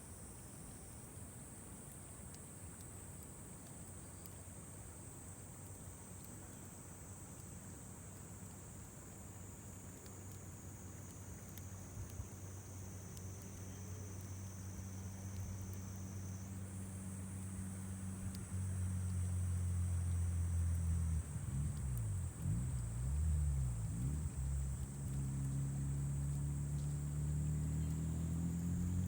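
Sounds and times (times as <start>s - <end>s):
campfire crackling: 1.4s - 29.0s
insects trilling: 3.5s - 29.0s
low engine drone: 14.8s - 29.0s.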